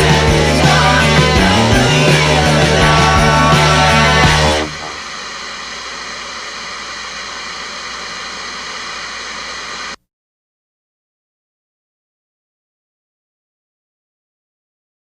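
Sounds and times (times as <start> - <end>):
rock music: 0.0 - 5.1
boat engine hum and hiss: 2.2 - 10.0.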